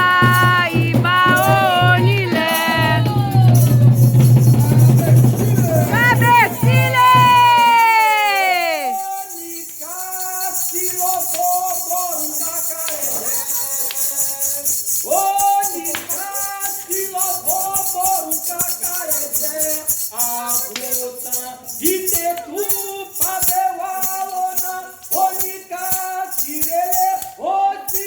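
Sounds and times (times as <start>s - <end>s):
struck drum beats: 0.0s - 8.8s
rattling percussion: 0.0s - 28.0s
voices singing a chant: 0.0s - 28.0s.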